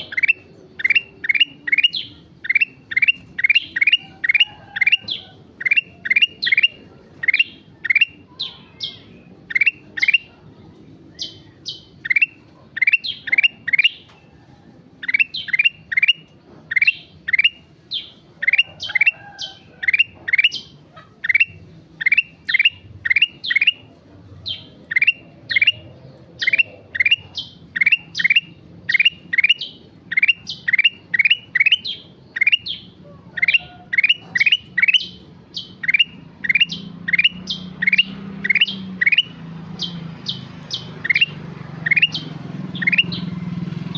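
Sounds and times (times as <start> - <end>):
bird whistling song: 0.0 - 10.4, 11.1 - 14.2, 15.0 - 43.4.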